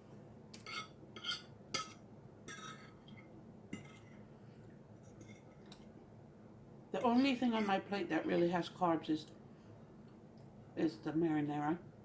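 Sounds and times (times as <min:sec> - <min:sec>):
cutlery clinking on a plate: 0:00.6 - 0:03.0.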